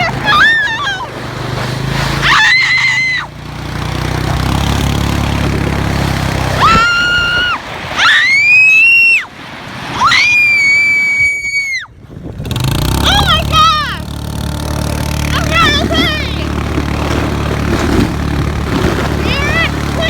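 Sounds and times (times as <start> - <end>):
low steady rumble: 0.0 - 10.5, 11.8 - 20.0
high-pitched screams: 2.2 - 3.3, 6.6 - 9.3, 10.0 - 11.9.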